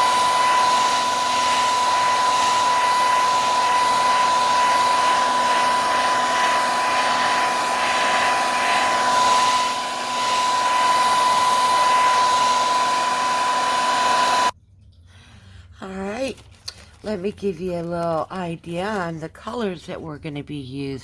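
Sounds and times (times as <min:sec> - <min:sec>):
hair dryer running: 0:00.0 - 0:14.6.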